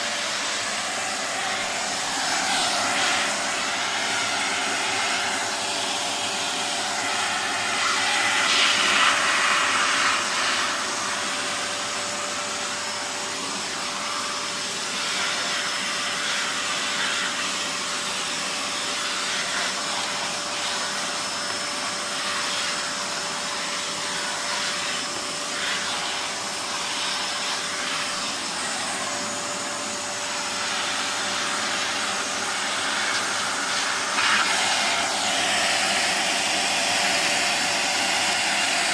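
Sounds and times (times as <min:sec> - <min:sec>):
upright vacuum cleaner running: 0:00.0 - 0:38.9.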